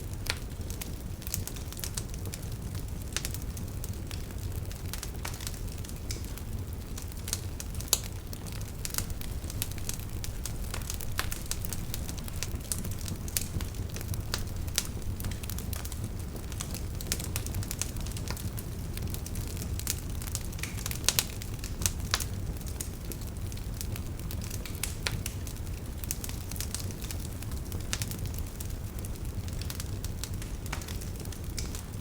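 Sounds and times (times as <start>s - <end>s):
fire crackling and popping: 0.0s - 32.0s
fire rumbling in fireplace: 0.0s - 32.0s.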